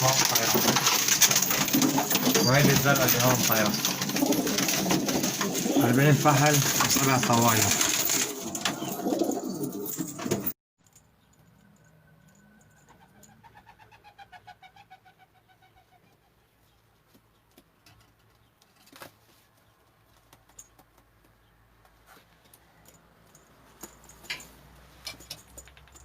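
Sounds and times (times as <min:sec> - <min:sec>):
rapid pulsed pigeon calls: 0:00.0 - 0:10.0
pigeons cooing: 0:00.0 - 0:10.5.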